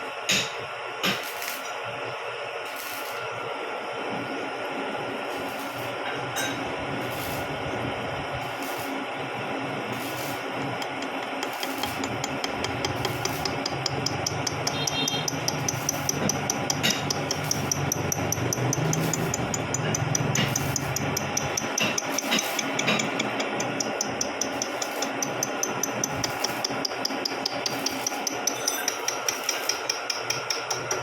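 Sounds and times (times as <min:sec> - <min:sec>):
milling machine running: 0:00.1 - 0:31.0
rapid regular ticking: 0:10.8 - 0:31.0.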